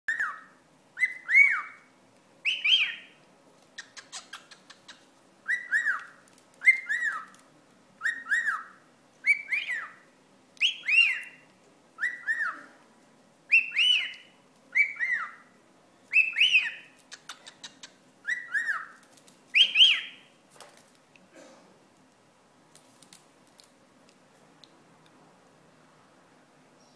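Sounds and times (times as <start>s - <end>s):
cockatiel whistled calls: 0.1s - 3.2s, 3.8s - 7.3s, 8.0s - 10.0s, 10.6s - 11.4s, 12.0s - 12.6s, 13.5s - 15.5s, 16.1s - 17.0s, 17.6s - 20.3s.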